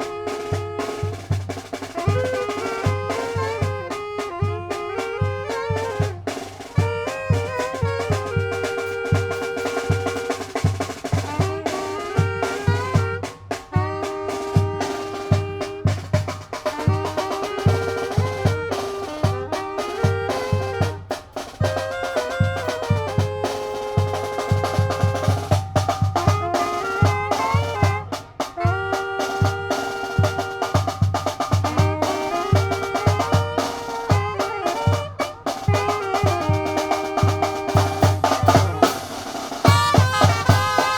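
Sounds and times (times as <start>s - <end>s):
brass playing a melody: 0.0s - 40.9s
snare drum: 0.0s - 40.9s
bass drum beat: 29.5s - 40.9s.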